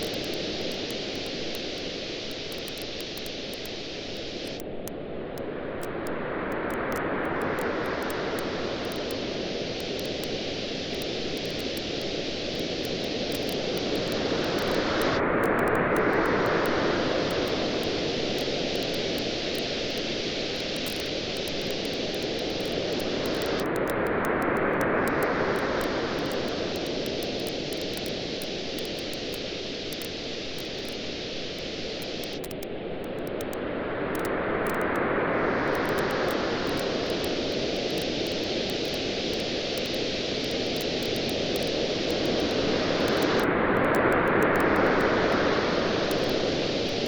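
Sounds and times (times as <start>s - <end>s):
campfire crackling and popping: 0.0s - 4.8s, 6.7s - 24.1s, 25.1s - 31.1s, 32.0s - 33.6s, 35.7s - 43.5s.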